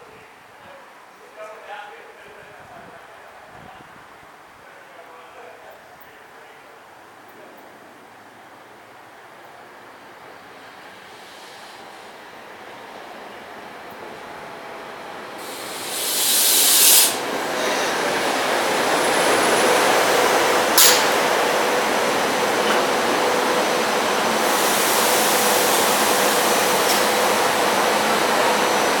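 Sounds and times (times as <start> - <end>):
train wheels rolling past: 10.0 - 29.0
loud hiss: 11.0 - 12.2, 15.3 - 28.7.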